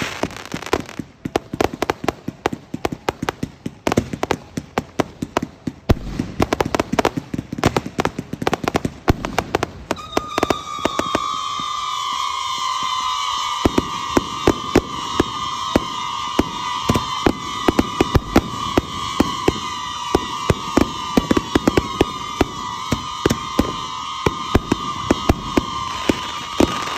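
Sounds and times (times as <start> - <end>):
fireworks popping and banging: 0.0 - 26.9
high whistle sliding down: 9.9 - 26.9.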